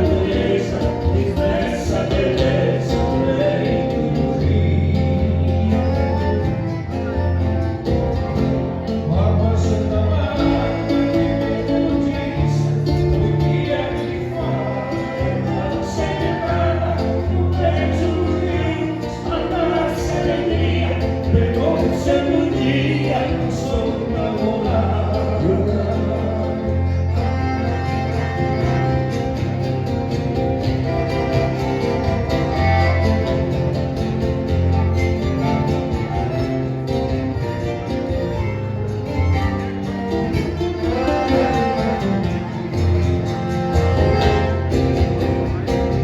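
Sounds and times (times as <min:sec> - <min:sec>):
person singing: 0:00.0 - 0:07.2, 0:09.1 - 0:29.0
held bass notes: 0:00.0 - 0:46.0.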